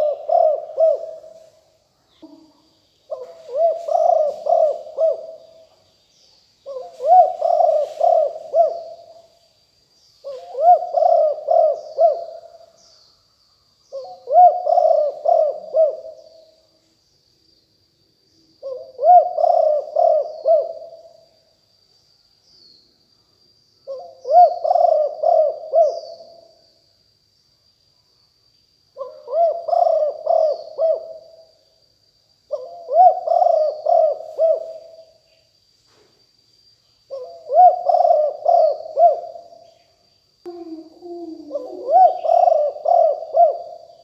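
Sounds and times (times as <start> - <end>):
dove cooing: 0.0 - 1.4, 2.2 - 5.6, 6.6 - 9.3, 10.2 - 12.7, 13.9 - 16.4, 18.6 - 21.0, 23.9 - 26.4, 29.0 - 31.3, 32.5 - 35.0, 37.1 - 39.6, 40.5 - 44.0.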